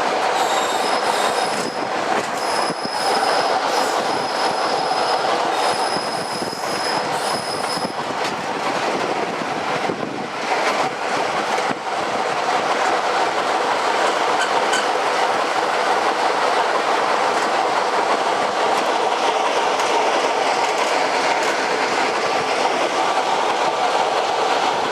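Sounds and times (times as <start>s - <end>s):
train rumbling on rails: 0.0s - 24.9s
high wheel squeal: 0.4s - 8.0s.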